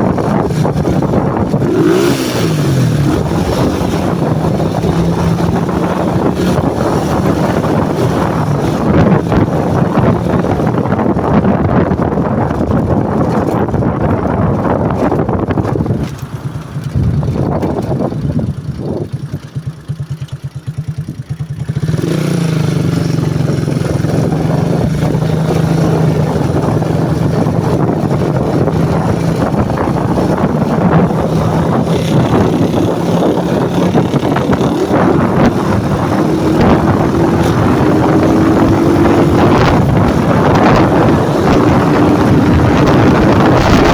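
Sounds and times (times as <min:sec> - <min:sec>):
motorcycle engine: 0:00.0 - 0:43.9
wind rushing over microphone: 0:00.0 - 0:43.9.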